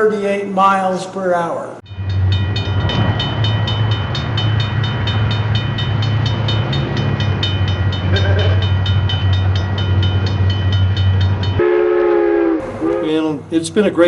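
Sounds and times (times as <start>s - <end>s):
rail joint clicks: 1.9s - 11.6s.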